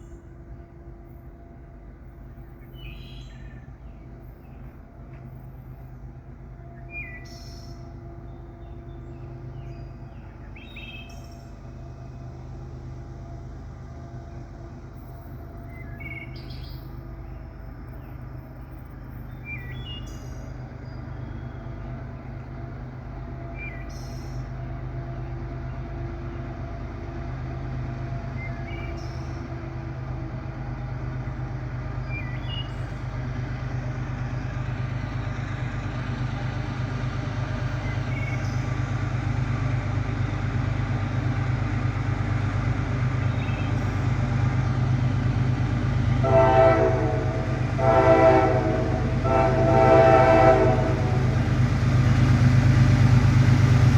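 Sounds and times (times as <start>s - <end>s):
diesel locomotive rumble: 0.0s - 53.9s
train air horn blasts: 46.1s - 51.6s.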